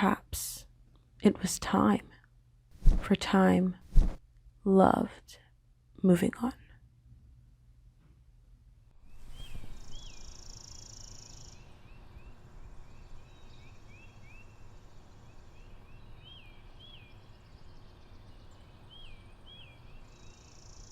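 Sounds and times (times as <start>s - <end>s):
high steady hiss: 9.0s - 20.9s
small birds chirping: 9.0s - 20.9s.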